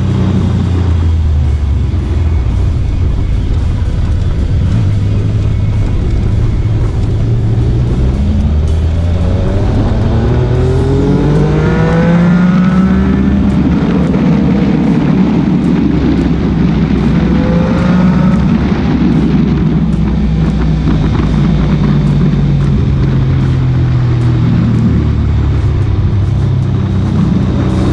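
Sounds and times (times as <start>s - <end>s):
engine accelerating: 0.0s - 27.9s
motorcycle engines droning: 0.0s - 27.9s.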